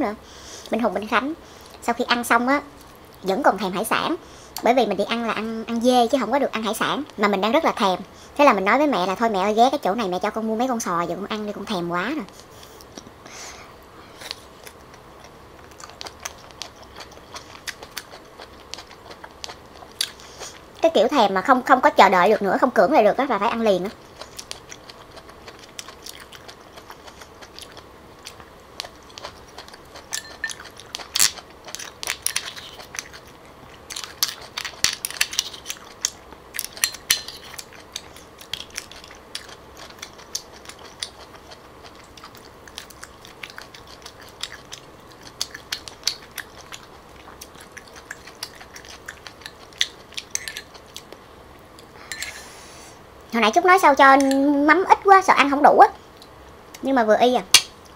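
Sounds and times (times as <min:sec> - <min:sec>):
chewing and biting: 0:14.2 - 0:20.7, 0:23.9 - 0:51.2
metal spoon clinking on shells: 0:30.2 - 0:30.7, 0:36.7 - 0:37.5, 0:50.3 - 0:50.7.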